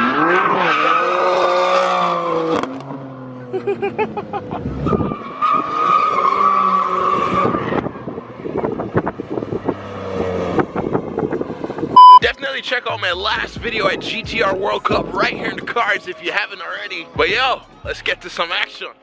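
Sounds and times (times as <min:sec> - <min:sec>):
tyres squealing and skidding: 0:00.0 - 0:02.8, 0:04.6 - 0:08.8.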